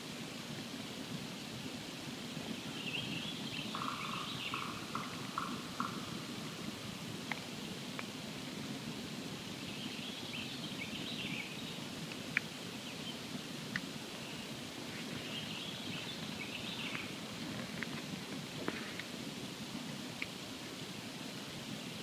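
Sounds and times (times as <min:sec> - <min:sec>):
campfire flames rushing: 0:06.6 - 0:09.6, 0:17.2 - 0:21.8.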